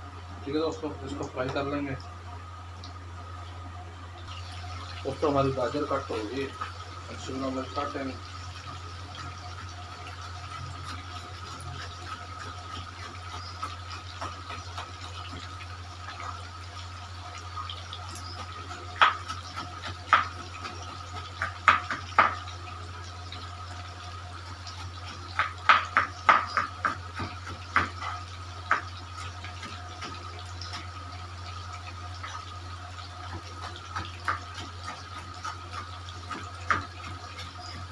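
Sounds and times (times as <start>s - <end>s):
frying in hot oil hiss: 0.0s - 37.9s
knife chopping on cutting board: 19.0s - 20.8s, 21.4s - 22.4s, 25.3s - 28.9s, 33.6s - 37.4s.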